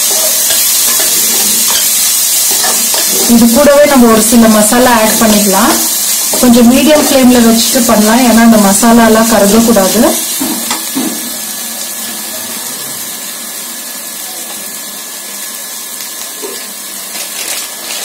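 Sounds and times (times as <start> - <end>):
onions sizzling in fat: 0.0 - 18.0.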